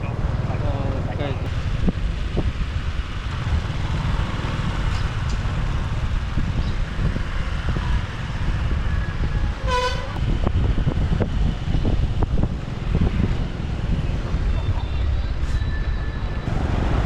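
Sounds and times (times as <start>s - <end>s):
vehicle horn toot: 9.6s - 10.2s.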